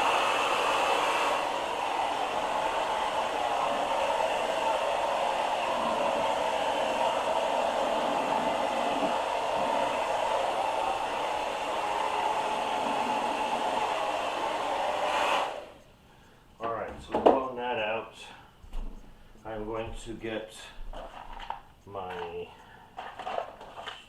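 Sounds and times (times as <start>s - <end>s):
blow dryer running: 0.0s - 15.8s.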